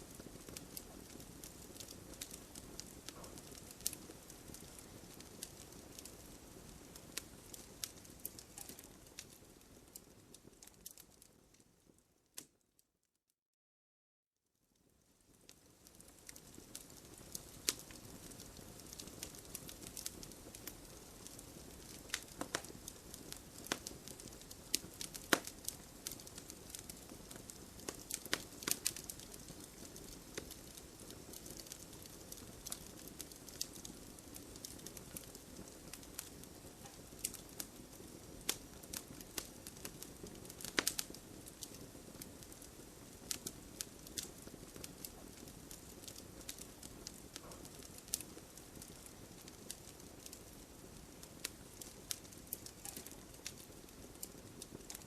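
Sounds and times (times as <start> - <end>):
campfire logs crackling: 0.0 - 11.4, 15.2 - 55.0
hiss of flames: 15.9 - 55.0.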